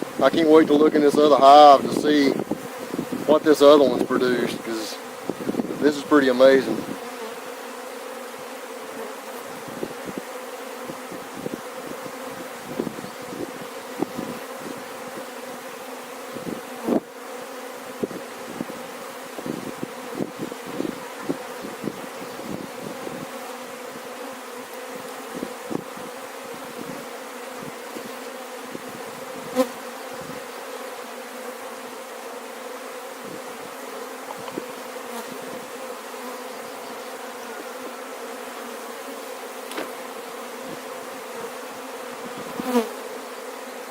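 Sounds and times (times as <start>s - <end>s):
bee colony buzzing: 0.0s - 43.9s.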